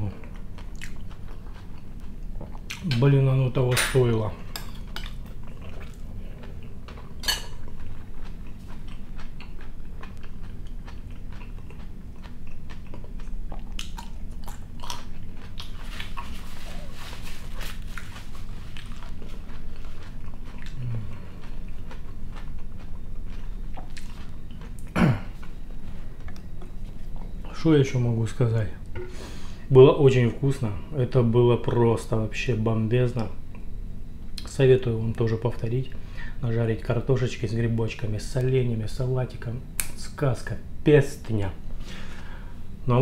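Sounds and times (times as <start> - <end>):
person chewing food: 0.1 - 3.0, 4.8 - 27.4.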